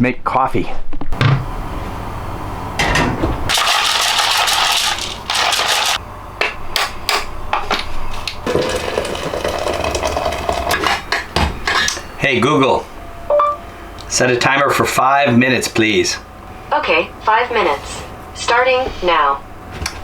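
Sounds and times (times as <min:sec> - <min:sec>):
utensils clattering and knocking: 0:08.5 - 0:12.0.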